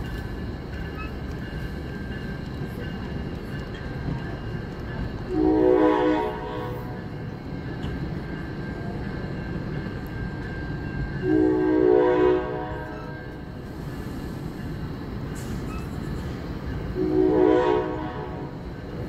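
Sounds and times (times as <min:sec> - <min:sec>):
passenger cars rumbling on rails: 0:00.0 - 0:19.0
multi-tone train horn blast: 0:05.3 - 0:07.0, 0:11.2 - 0:13.4, 0:17.0 - 0:18.7.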